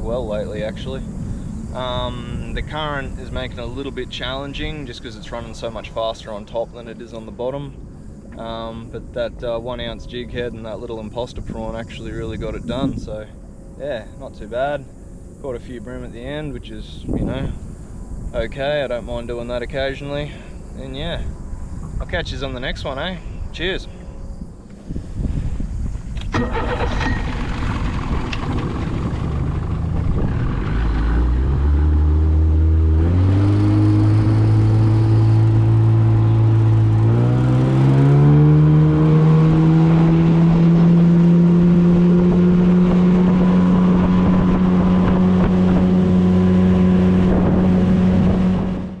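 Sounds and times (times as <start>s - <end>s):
outboard motor throttling up: 26.3s - 49.0s
rush of wind and water: 42.8s - 48.9s.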